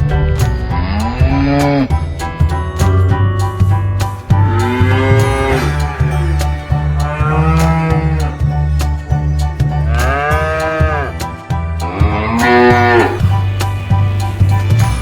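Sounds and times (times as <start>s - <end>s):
background music with beat: 0.0s - 15.0s
cows mooing: 0.1s - 2.2s, 4.3s - 8.5s, 9.9s - 13.5s.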